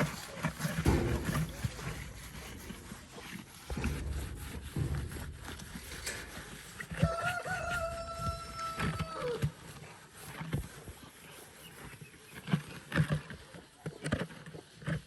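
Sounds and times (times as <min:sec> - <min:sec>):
sponge scrubbing plastic: 0:00.0 - 0:08.6
rooster crowing: 0:07.0 - 0:09.4.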